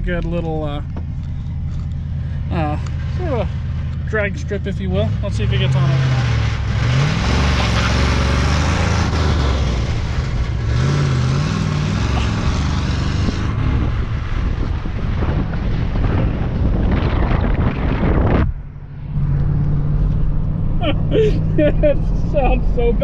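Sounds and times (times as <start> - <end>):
truck engine accelerating: 0.0 - 23.0
wind rush: 12.2 - 20.7.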